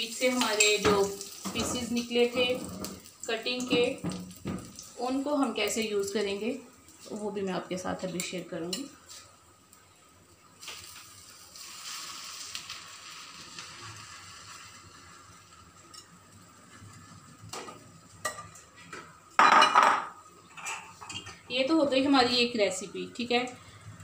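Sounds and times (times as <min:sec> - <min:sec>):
bread frying in oil: 0:00.0 - 0:23.8
spoon clinking and scraping dishes: 0:19.4 - 0:21.4.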